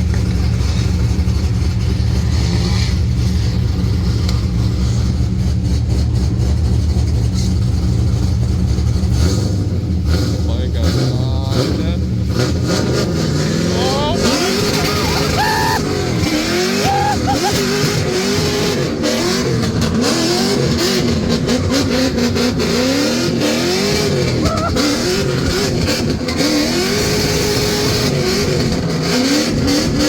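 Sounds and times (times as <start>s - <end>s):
car engine revving hard: 9.0s - 30.0s.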